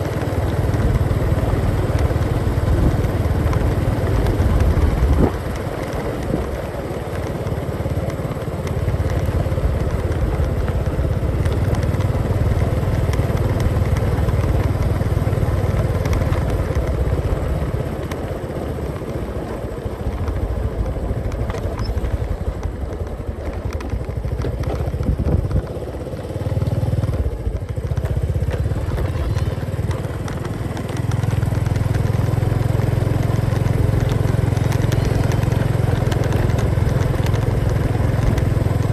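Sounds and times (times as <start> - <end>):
motorcycle engine droning: 0.0 - 38.9.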